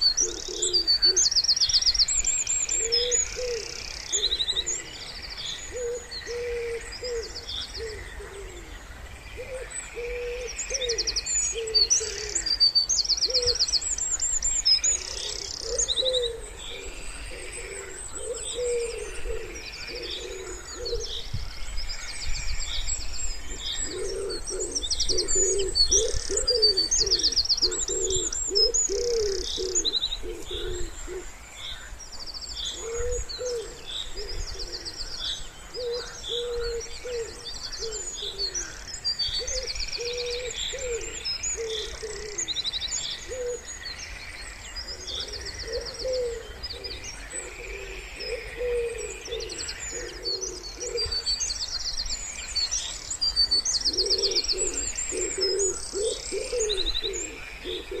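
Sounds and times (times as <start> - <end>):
wood pigeon cooing: 0.0 - 1.3, 2.8 - 5.0, 5.7 - 8.7, 9.4 - 12.6, 15.0 - 21.2, 23.5 - 31.3, 32.8 - 34.9, 35.7 - 38.8, 39.4 - 42.6, 43.2 - 43.6, 44.9 - 51.3, 53.6 - 58.0
small birds trilling: 0.0 - 58.0.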